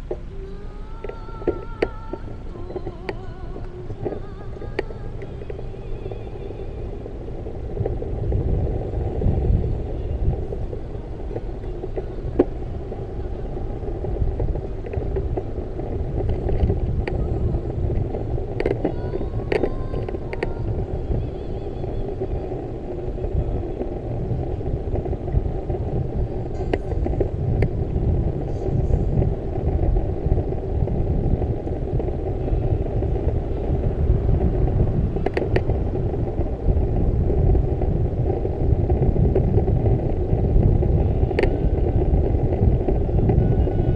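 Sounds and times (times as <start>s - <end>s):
bicycle road noise: 0.0s - 43.9s
wind on microphone: 0.0s - 43.9s
faint clicks: 0.9s - 8.7s, 10.2s - 27.8s.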